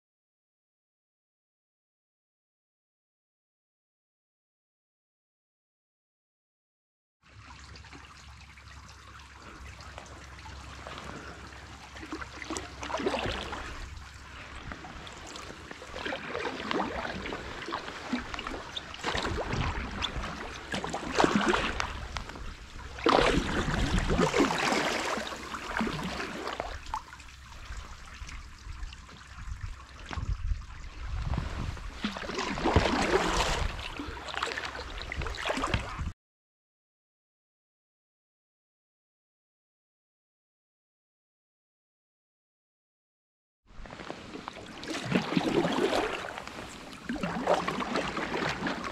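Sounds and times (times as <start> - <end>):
water trickling and splashing: 7.2 - 36.1, 43.8 - 48.9.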